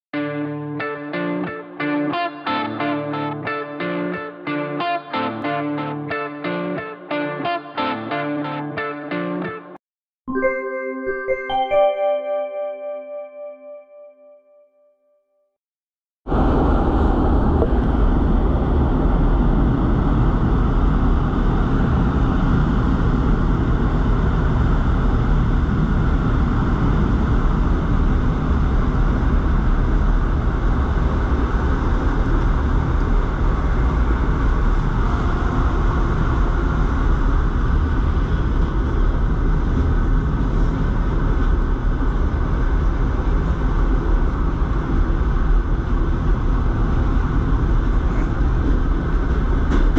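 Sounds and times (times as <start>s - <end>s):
train wheels rumbling on track: 16.3s - 49.9s.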